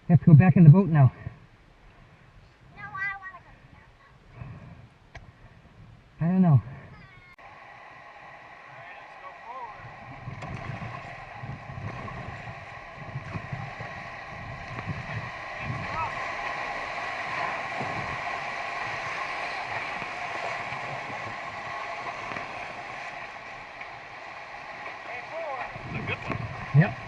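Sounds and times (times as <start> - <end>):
wind buffeting microphone: 1.0 - 27.0
rushing river water: 7.4 - 27.0.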